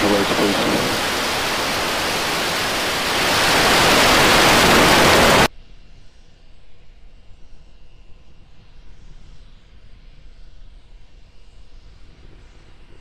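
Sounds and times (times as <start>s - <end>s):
rocket engines roaring: 0.0s - 5.5s.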